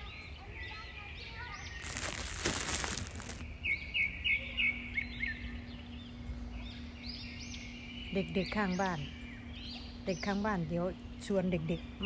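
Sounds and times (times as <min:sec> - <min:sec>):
rustling noise: 0:01.7 - 0:03.4.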